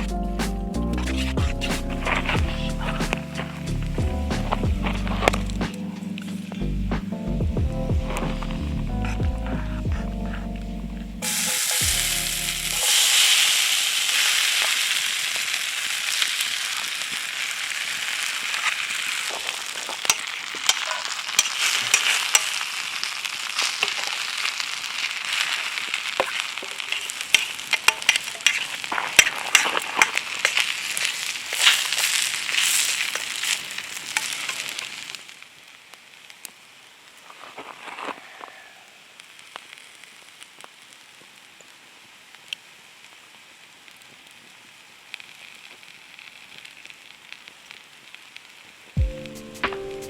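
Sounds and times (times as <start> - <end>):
background music: 0.0 - 13.0, 49.0 - 50.0
food sizzling in a pan: 1.0 - 6.7, 11.2 - 50.0
spitting pops of frying: 1.0 - 8.8, 11.2 - 36.6.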